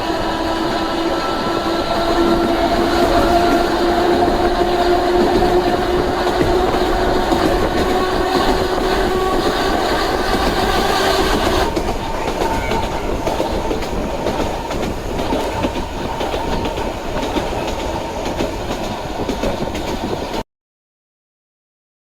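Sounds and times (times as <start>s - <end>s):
traction motor whine: 0.0s - 15.6s
electric train running: 0.0s - 20.4s
wheels clicking over rail joints: 0.2s - 20.4s.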